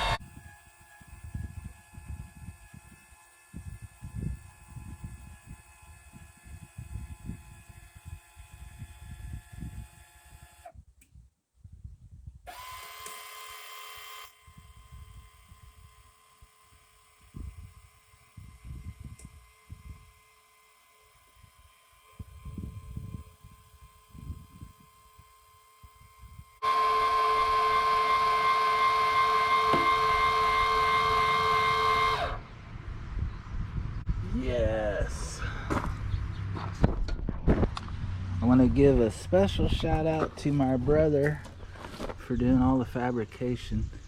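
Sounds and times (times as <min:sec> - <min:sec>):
small motor whining: 0:00.0 - 0:10.8, 0:12.5 - 0:32.5
low rumble: 0:32.4 - 0:42.4.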